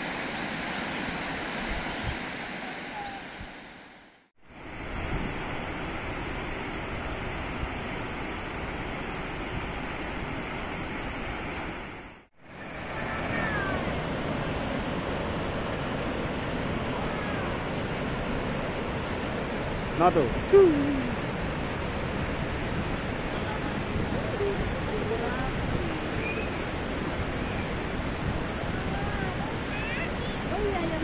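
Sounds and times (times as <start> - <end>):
waterfall rushing: 12.5 - 31.0
faint bird chirps: 26.2 - 26.6.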